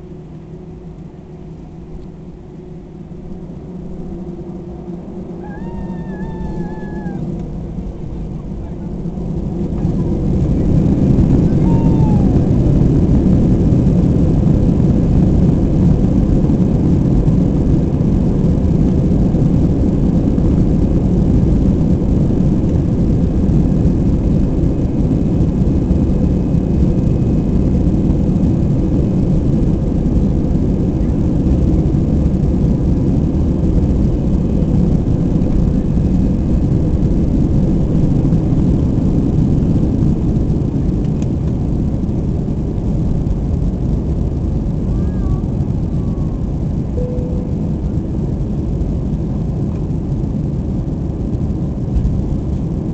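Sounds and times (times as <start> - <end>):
jet engines at takeoff: 0.0 - 52.9.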